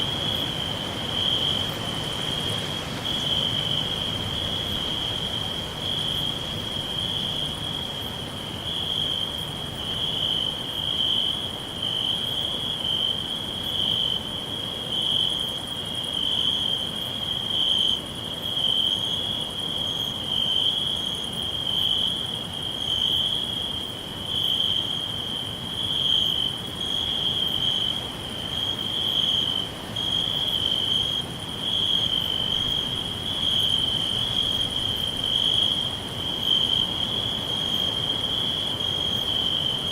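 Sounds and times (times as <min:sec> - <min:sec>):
crickets chirping: 0:00.0 - 0:39.9
high insect calls: 0:00.0 - 0:39.9.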